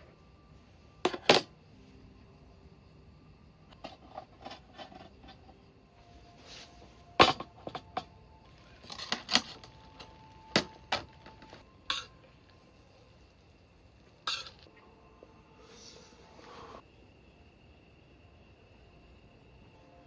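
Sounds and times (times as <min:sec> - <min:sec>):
kitchen gear knocking and clinking: 0:07.2 - 0:08.1.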